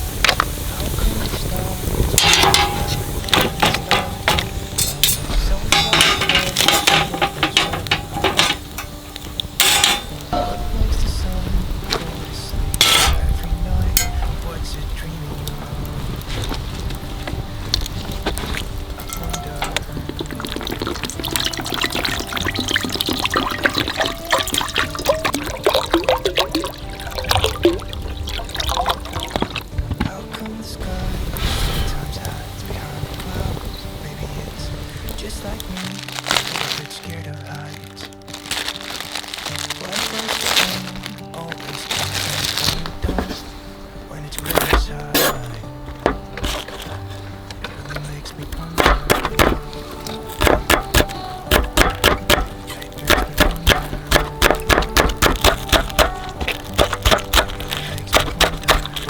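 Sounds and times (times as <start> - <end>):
water bubbling in a pot: 0.0 - 10.7, 16.7 - 29.9
light background music: 0.0 - 59.0
metal cookware clinking: 2.1 - 11.2, 12.7 - 14.5, 17.7 - 30.1, 44.5 - 59.0.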